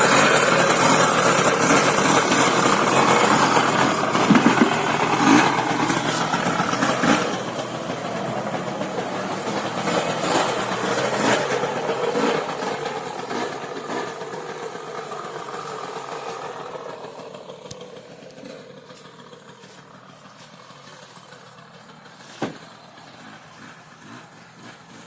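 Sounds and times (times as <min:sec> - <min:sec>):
two-stroke motorbike engine: 0:00.0 - 0:25.0
sharp knock: 0:22.4 - 0:22.7.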